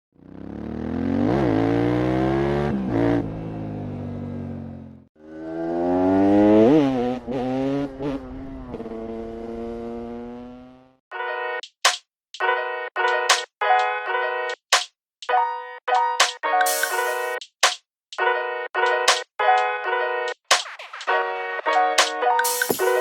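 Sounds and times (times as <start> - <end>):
motorcycle engine revving: 0.1 - 11.0.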